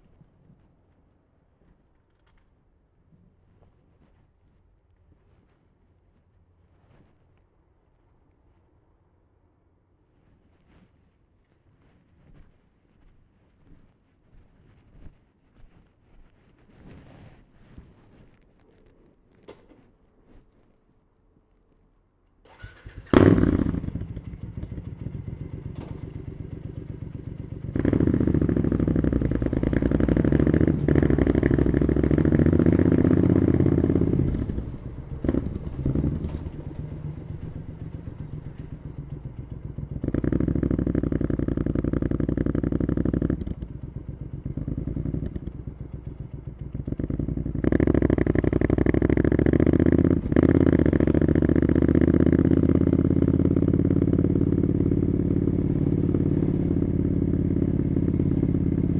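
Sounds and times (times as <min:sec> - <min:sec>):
motorcycle engine revving: 0:22.5 - 0:58.9.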